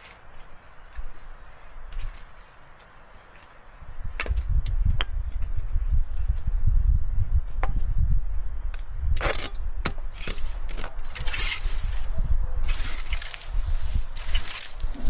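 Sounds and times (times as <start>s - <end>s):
steady low rumble: 3.8s - 15.0s
hand tool scraping: 9.2s - 15.0s.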